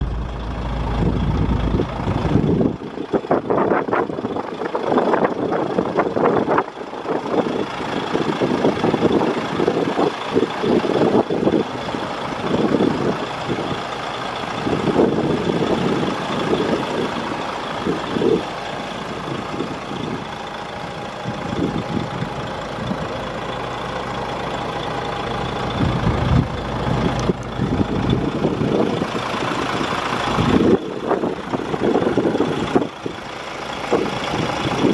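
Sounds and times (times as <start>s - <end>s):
uneven low rumbles: 0.0s - 3.0s, 24.5s - 34.9s
diesel engine idling: 0.0s - 34.9s.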